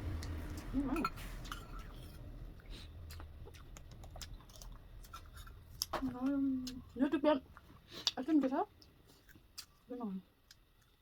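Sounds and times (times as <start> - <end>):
chewing mouth noises: 2.6 - 6.0.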